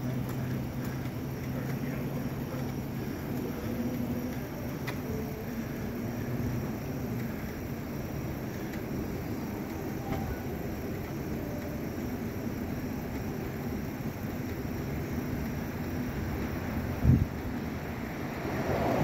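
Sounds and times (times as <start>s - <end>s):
faint clicks: 0.0s - 5.2s
vehicle engine idling: 0.0s - 19.0s.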